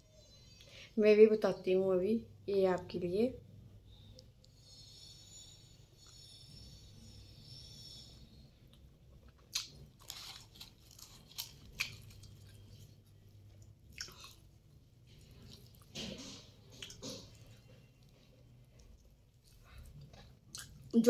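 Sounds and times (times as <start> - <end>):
person chewing food: 8.6 - 21.0.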